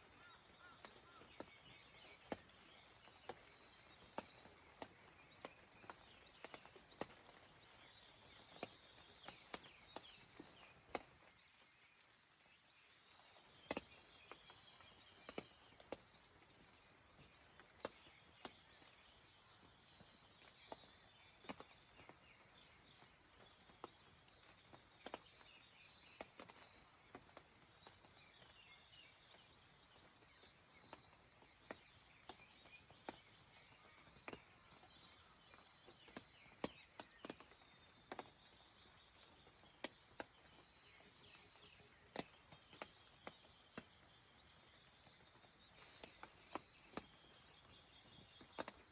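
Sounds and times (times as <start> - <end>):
faint light rain: 0.0 - 48.9
small birds chirping: 0.0 - 48.9
heavy raindrops tapping: 26.2 - 48.9.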